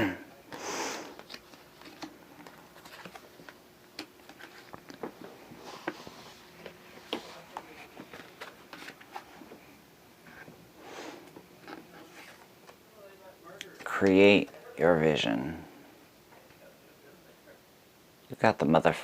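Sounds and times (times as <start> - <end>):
cards being shuffled: 1.0 - 9.5.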